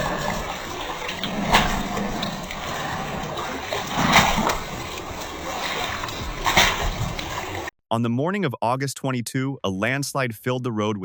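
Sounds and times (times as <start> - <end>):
water splashing and running: 0.0 - 7.7.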